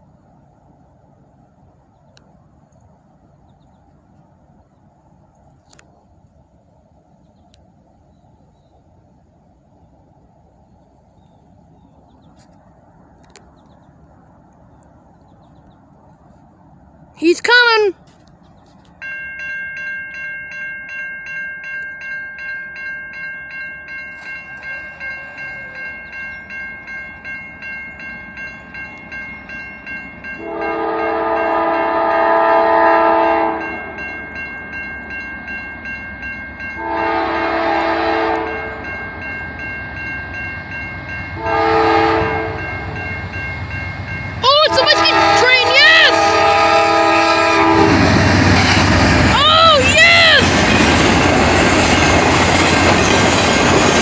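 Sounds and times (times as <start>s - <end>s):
train rumbling: 0.0s - 54.0s
railroad crossing bell ringing: 18.8s - 54.0s
locomotive air horn blasts: 30.4s - 34.0s, 36.8s - 38.8s, 41.4s - 42.8s, 44.5s - 48.2s.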